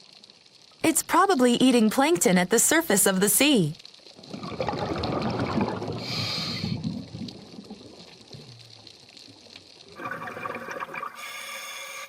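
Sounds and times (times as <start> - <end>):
loud water sound: 4.2 - 7.1
low wash of water: 4.2 - 8.9.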